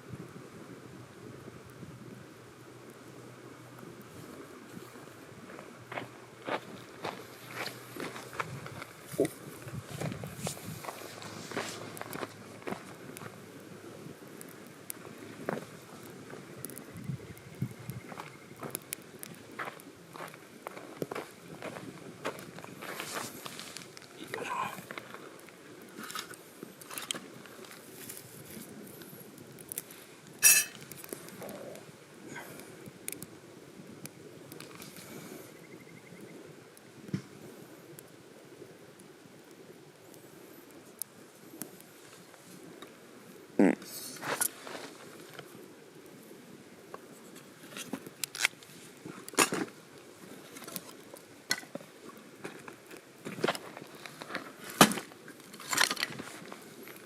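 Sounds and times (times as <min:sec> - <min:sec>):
low hiss: 0:00.0 - 0:57.0
metal cookware clicks and knocks: 0:30.4 - 0:30.8
ringing metallic clink: 0:30.4 - 0:30.8.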